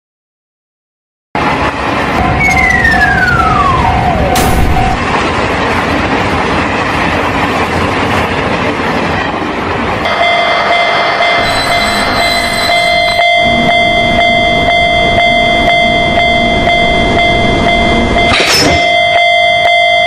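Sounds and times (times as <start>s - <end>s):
train rumbling: 1.4s - 20.0s
crossing alarm tones: 2.1s - 5.3s, 10.0s - 20.0s
tone sliding down in pitch: 2.2s - 5.1s, 11.4s - 18.3s
steady ringing tone: 10.1s - 20.0s.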